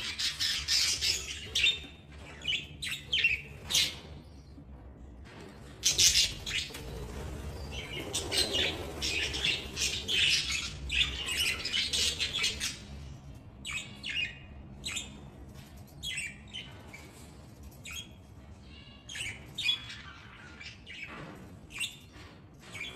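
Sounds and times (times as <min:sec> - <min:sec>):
budgerigars chirping: 0:00.0 - 0:04.1.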